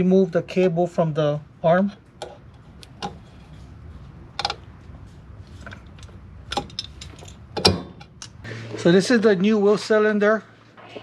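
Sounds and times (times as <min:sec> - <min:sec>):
low steady hum: 0:00.0 - 0:11.0
metal clank: 0:06.5 - 0:08.2.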